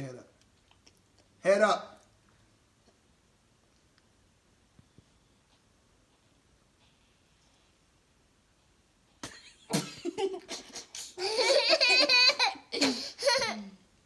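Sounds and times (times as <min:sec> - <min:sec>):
young child laughing: 0:09.2 - 0:13.8.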